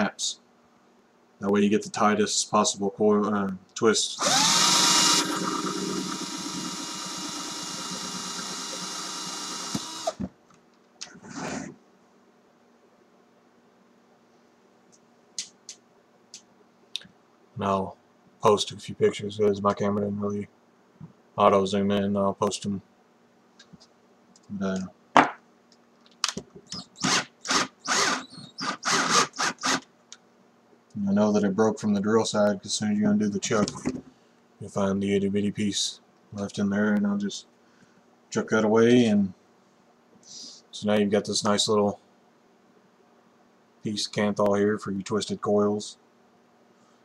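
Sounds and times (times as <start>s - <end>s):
cordless drill whining: 4.2s - 10.3s, 26.8s - 29.8s.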